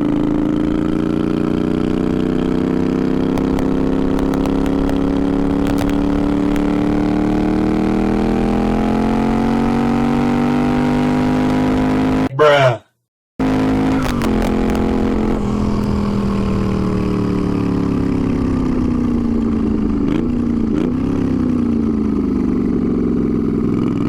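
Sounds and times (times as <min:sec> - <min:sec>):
motorcycle engine accelerating: 0:00.0 - 0:12.3, 0:13.4 - 0:24.0.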